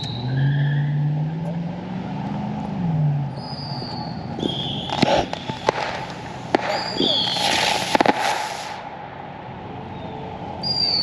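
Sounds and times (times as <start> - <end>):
fireworks whistling: 3.3 - 9.0, 9.9 - 11.0
fireworks cracking and popping: 4.3 - 9.1.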